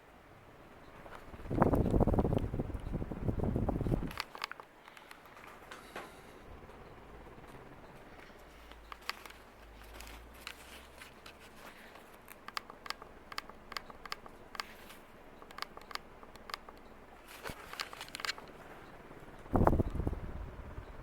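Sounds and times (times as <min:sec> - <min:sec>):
faint steady background noise: 0:00.0 - 0:21.0
light sharp clicks and taps: 0:03.8 - 0:06.1, 0:08.2 - 0:18.6.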